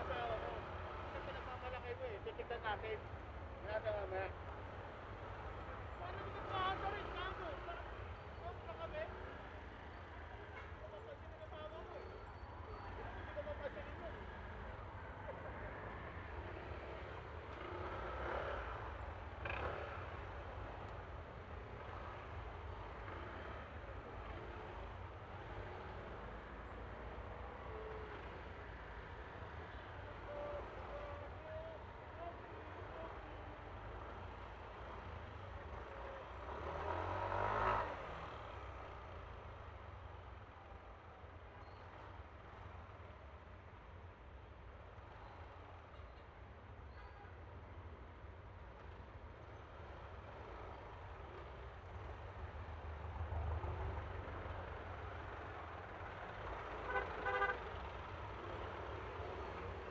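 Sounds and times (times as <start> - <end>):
road and wind rumble: 0.0 - 59.9
vehicle passing by: 36.2 - 39.1.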